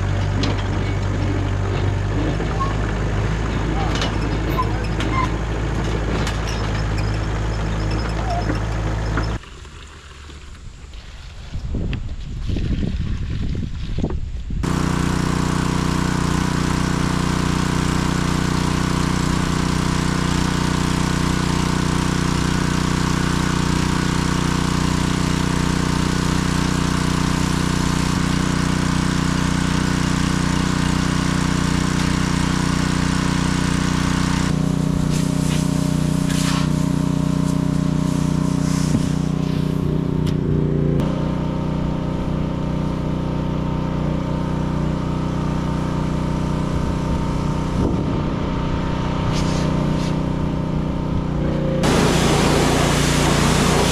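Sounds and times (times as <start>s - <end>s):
diesel engine running: 0.0s - 11.0s, 14.6s - 53.9s
hiss: 34.9s - 39.8s, 51.8s - 53.9s.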